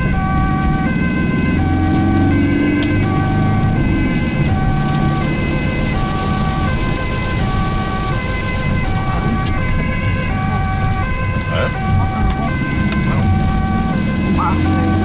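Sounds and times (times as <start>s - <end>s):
engine and road noise: 0.0s - 15.0s
two-tone ambulance siren: 0.0s - 15.0s.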